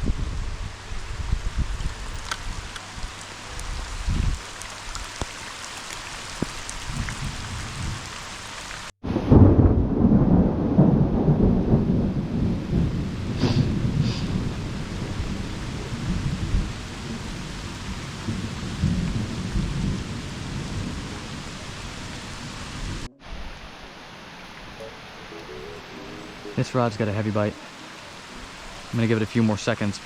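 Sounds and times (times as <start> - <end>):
steady rain falling: 0.0 - 30.0
low rumble of thunder: 6.8 - 8.1, 9.0 - 23.8.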